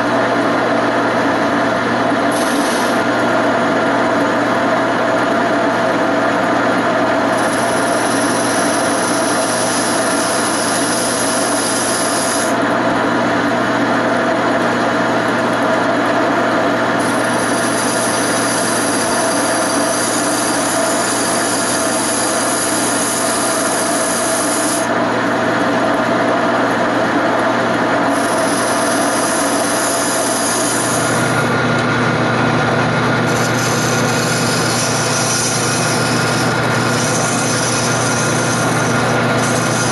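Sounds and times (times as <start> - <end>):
wood lathe running: 0.0 - 39.9
tool cutting wood hiss: 2.2 - 3.1, 7.3 - 12.6, 17.0 - 24.9, 28.1 - 31.4, 33.3 - 39.9.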